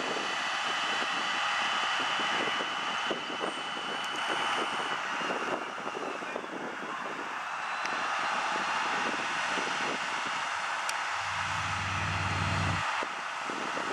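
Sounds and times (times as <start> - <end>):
truck water pump running: 11.1 - 12.8.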